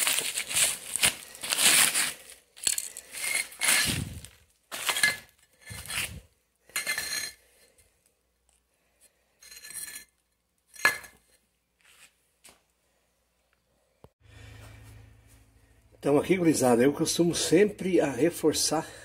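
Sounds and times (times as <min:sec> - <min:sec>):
trowel scraping mortar and brick: 0:02.7 - 0:06.2.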